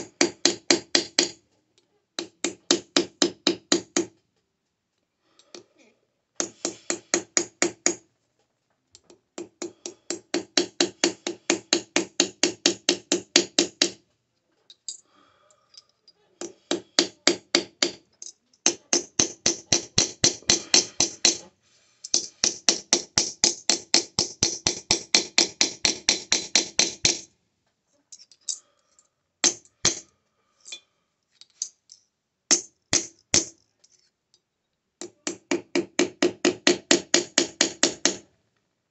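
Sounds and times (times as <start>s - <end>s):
hammer striking metal bar: 18.7s - 21.4s, 22.1s - 27.2s, 32.5s - 33.5s.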